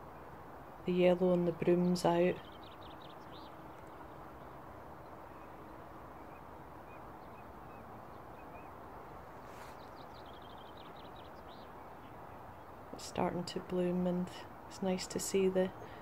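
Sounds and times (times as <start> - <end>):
small birds chirping: 0.8 - 16.0
outdoor hiss: 9.2 - 11.3.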